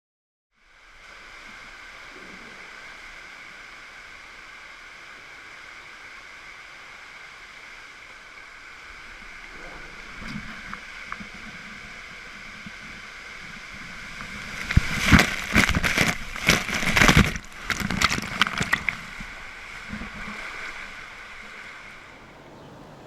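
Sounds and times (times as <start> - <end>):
water rushing down slide tube: 0.6 - 23.0
loud splashing: 8.9 - 23.0.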